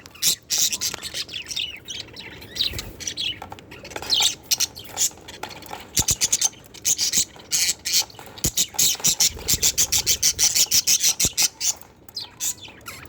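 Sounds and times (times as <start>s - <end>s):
budgerigars chattering: 6.0s - 13.0s.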